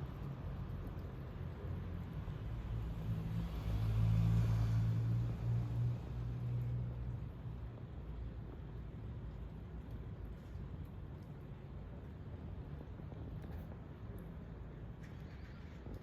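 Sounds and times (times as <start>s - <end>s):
car passing: 1.7s - 7.5s.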